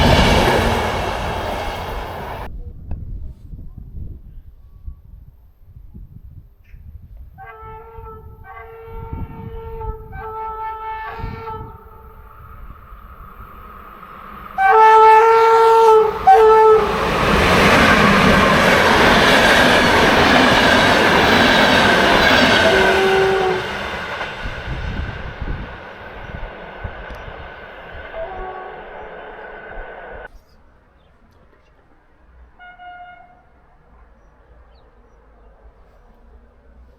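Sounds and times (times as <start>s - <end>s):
train passing with rolling rumble: 0.0s - 4.1s, 7.0s - 36.9s
train horn blasts: 7.4s - 12.4s, 14.5s - 18.4s, 20.0s - 24.2s, 28.1s - 29.4s, 32.6s - 33.6s.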